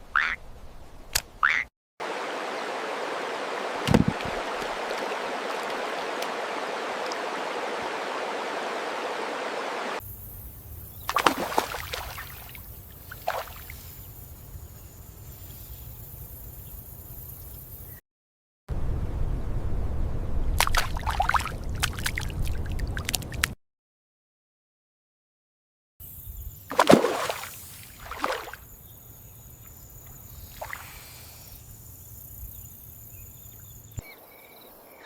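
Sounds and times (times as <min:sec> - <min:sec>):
running water rushing: 0:02.0 - 0:10.0, 0:26.7 - 0:28.7.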